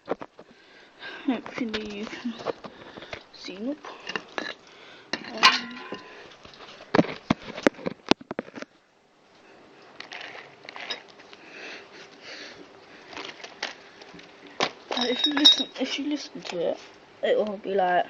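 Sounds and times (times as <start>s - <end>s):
soft rustling: 1.2s - 4.0s.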